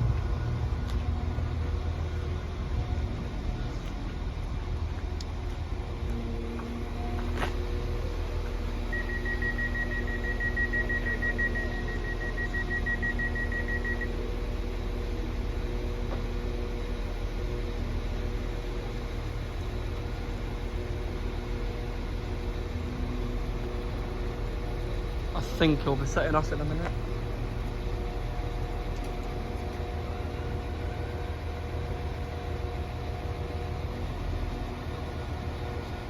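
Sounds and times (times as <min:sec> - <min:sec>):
train engine idling: 0:00.0 - 0:36.0
rapid high door warning beeps: 0:08.9 - 0:14.2.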